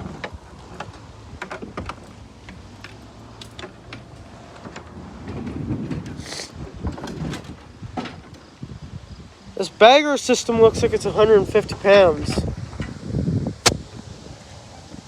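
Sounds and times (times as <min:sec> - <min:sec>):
short hiss: 0:06.2 - 0:06.5.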